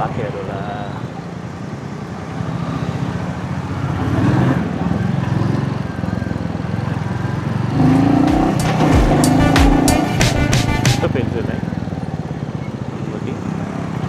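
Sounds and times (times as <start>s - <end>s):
motorcycle engine running: 4.5s - 14.0s.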